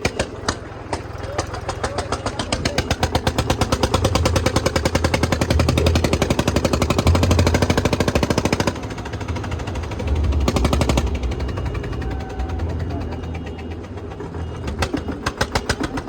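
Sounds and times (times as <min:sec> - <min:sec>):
diesel tractor engine revving: 0:00.0 - 0:16.0.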